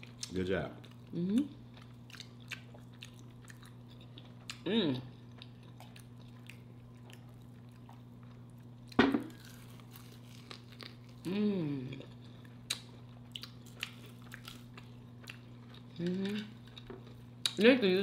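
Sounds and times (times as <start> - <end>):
chewing and crunching food: 0.0 - 17.7
low electrical hum: 0.0 - 18.0
person humming mmm: 1.1 - 1.5, 4.6 - 5.2, 11.2 - 12.1, 16.0 - 16.6.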